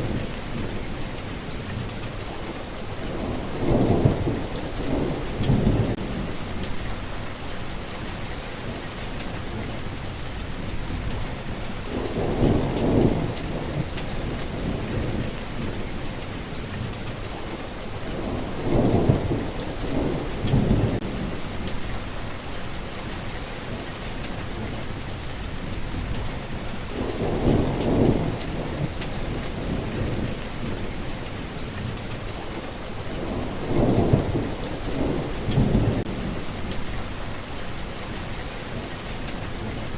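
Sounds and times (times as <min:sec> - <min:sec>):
steady rain: 0:00.0 - 0:39.9
low rolls of thunder: 0:03.0 - 0:07.3, 0:08.1 - 0:17.3, 0:17.9 - 0:22.3, 0:23.2 - 0:32.4, 0:33.0 - 0:37.3.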